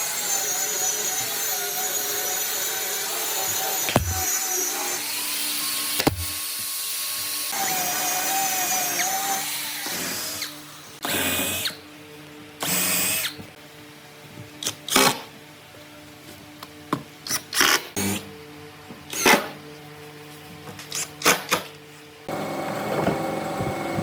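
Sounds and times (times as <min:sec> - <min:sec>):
handheld power tool running: 0:00.0 - 0:11.8, 0:22.3 - 0:24.0.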